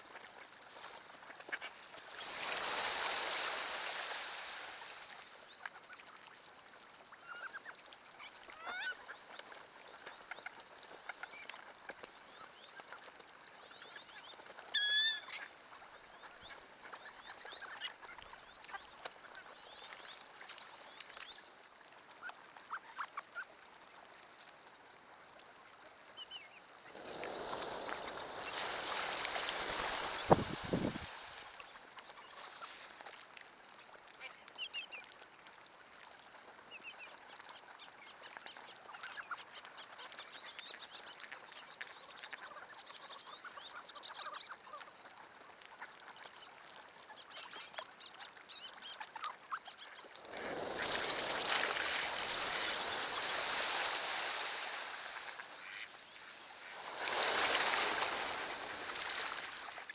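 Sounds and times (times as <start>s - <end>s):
ducks quacking and whistling: 7.1s - 13.0s, 13.6s - 21.4s, 36.7s - 53.8s, 55.2s - 56.2s.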